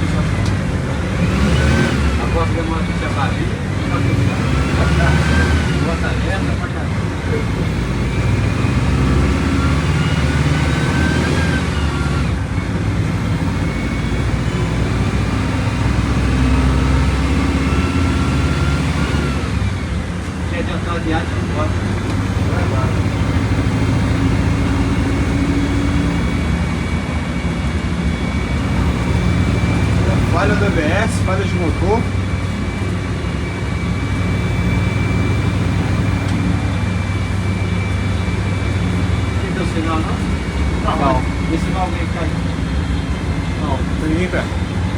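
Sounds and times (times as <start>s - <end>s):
bus engine drone with whine: 0.0s - 44.9s.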